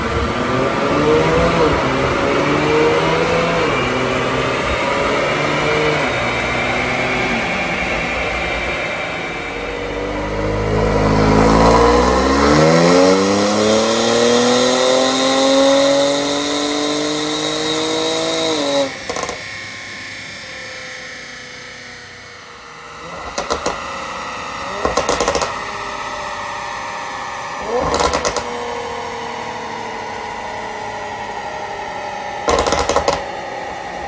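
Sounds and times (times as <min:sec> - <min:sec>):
car engine accelerating hard: 0:00.0 - 0:19.0
exhaust crackles and pops: 0:32.5 - 0:33.2.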